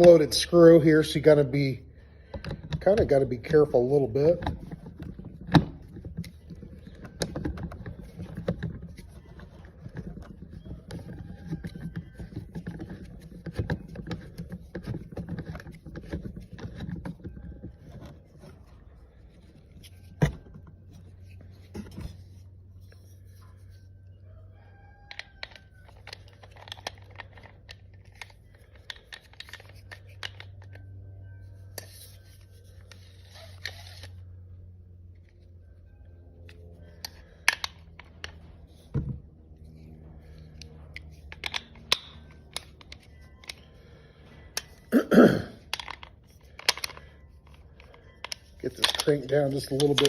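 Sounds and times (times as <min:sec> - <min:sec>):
parts clicking and tapping: 0:02.2 - 0:23.7, 0:25.1 - 0:31.0, 0:36.4 - 0:44.9, 0:45.6 - 0:50.0
light clicks of plastic parts: 0:40.2 - 0:44.9, 0:45.6 - 0:50.0.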